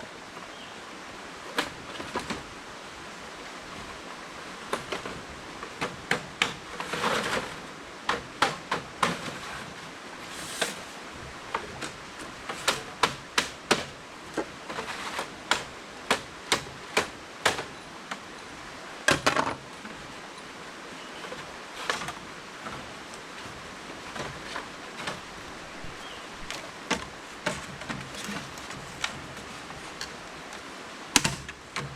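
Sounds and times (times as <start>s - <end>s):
scraping on bamboo: 4.8s - 18.3s, 21.0s - 31.9s
tool striking bamboo: 11.8s - 14.0s, 14.8s - 17.8s, 31.1s - 31.9s.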